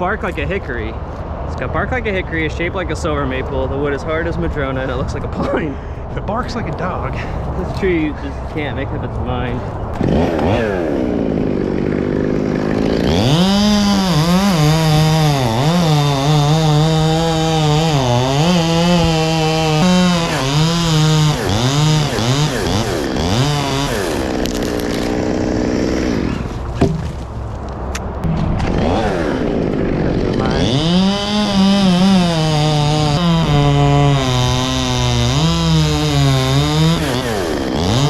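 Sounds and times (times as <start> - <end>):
chainsaw cutting wood: 10.0 - 27.3, 28.2 - 38.0.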